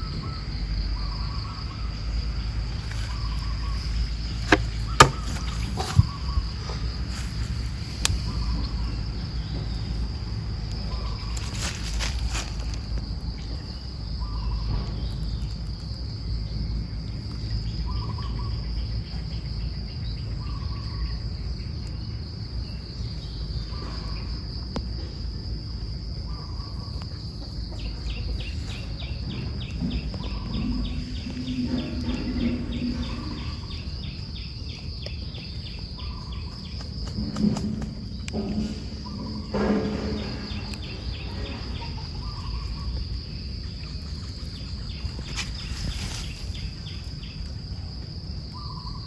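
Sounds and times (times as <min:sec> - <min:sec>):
insects trilling: 0:00.0 - 0:49.0
pulsing insect trill: 0:00.0 - 0:49.0
low rumble: 0:28.0 - 0:34.6, 0:37.2 - 0:48.1.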